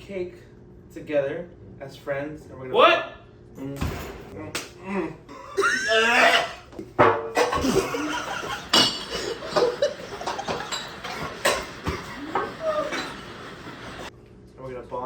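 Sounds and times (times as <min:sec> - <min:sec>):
people laughing: 0:07.4 - 0:14.1.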